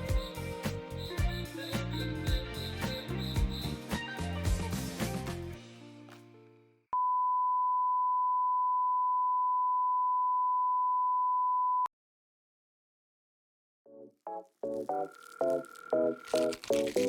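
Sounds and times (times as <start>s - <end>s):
steady electronic beep: 0.0s - 3.8s
background music: 0.0s - 6.6s.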